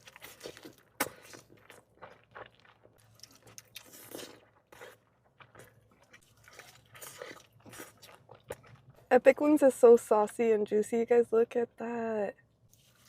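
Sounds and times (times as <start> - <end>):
chewing and biting food: 0.0 - 9.0.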